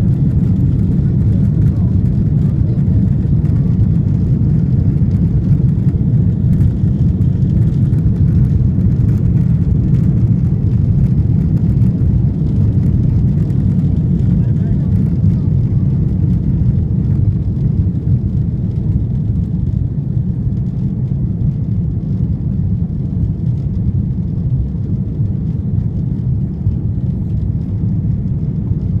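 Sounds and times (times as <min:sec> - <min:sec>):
jet engines low rumble: 0:00.0 - 0:29.0.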